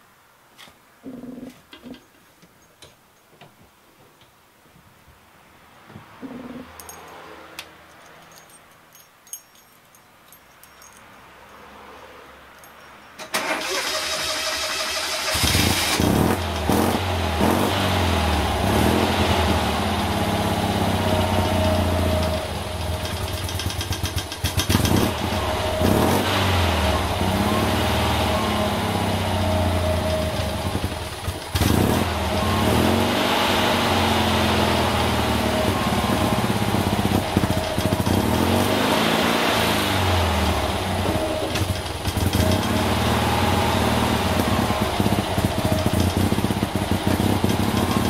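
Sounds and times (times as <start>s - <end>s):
engine cranking and starting: 13.2s - 17.0s, 22.8s - 27.0s, 40.3s - 48.0s
engine idling: 40.3s - 48.0s.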